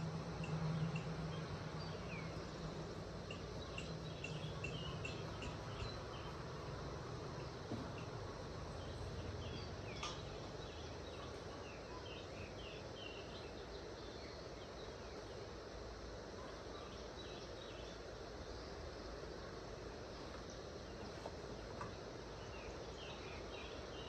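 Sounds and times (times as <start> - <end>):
outdoor background hiss: 0.0 - 24.0
small bird chirping: 0.4 - 6.4.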